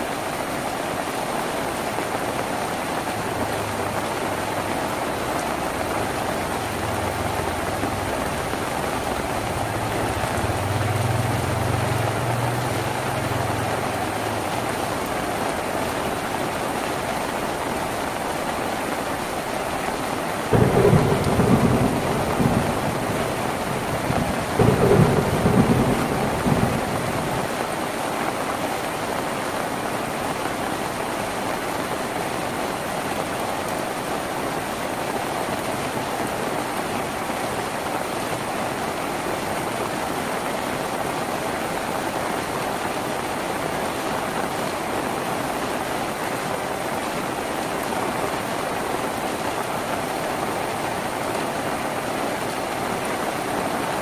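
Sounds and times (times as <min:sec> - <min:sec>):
rain drumming on a tin roof: 0:00.0 - 0:54.0
thunder rumbles: 0:04.7 - 0:15.0, 0:20.5 - 0:28.1.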